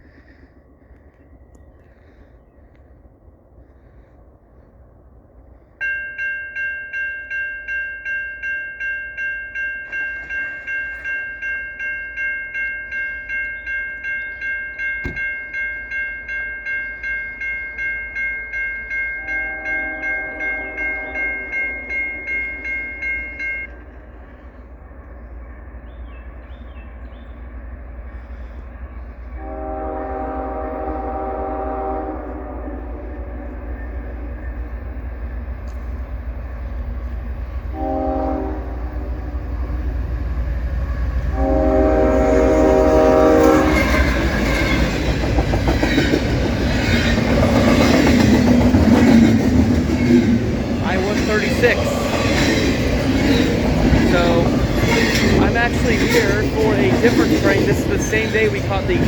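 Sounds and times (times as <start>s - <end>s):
passing train rumble: 0.0s - 59.0s
locomotive air horn blast: 19.2s - 21.5s, 29.3s - 33.7s, 37.7s - 39.3s, 41.3s - 44.0s
locomotive diesel engine: 50.4s - 59.0s.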